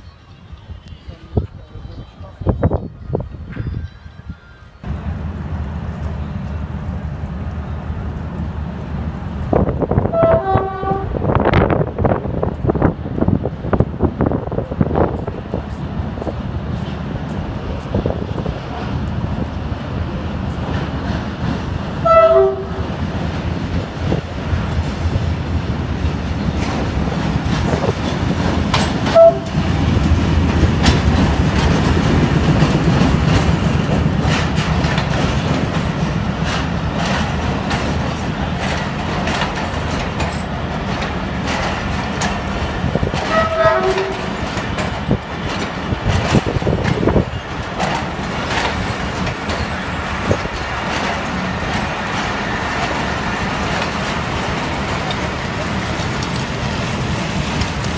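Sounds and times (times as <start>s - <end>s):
passenger train rumbling: 0.0s - 57.9s
train horn blasts: 10.0s - 11.3s, 22.0s - 22.9s, 29.1s - 29.6s, 43.2s - 44.3s
wheels clattering over rail joints: 15.0s - 57.9s.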